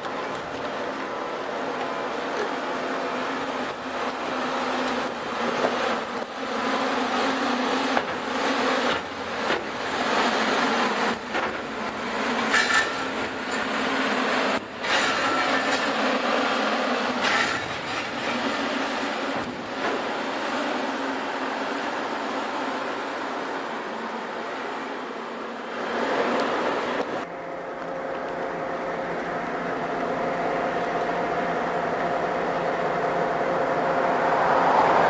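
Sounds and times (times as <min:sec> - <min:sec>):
freight cars rumbling on rails: 0:08.0 - 0:35.0
metallic clanks: 0:12.4 - 0:13.8.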